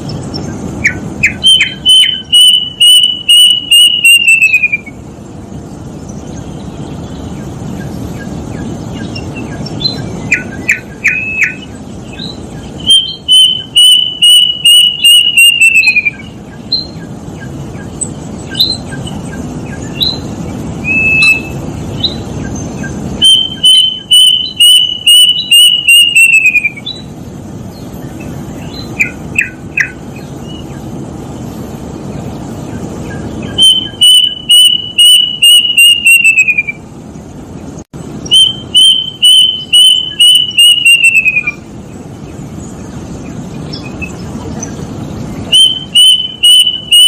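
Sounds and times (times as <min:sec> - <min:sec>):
low background noise: 0:00.0 - 0:47.0
cuckoo whistled notes: 0:00.9 - 0:05.0, 0:12.8 - 0:17.0, 0:20.8 - 0:22.2, 0:23.2 - 0:27.0, 0:33.4 - 0:36.8, 0:38.3 - 0:41.6, 0:45.5 - 0:47.0.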